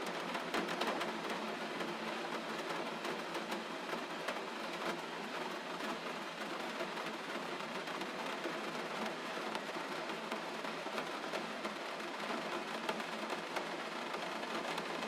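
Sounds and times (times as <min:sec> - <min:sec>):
gentle rain: 0:00.0 - 0:15.0.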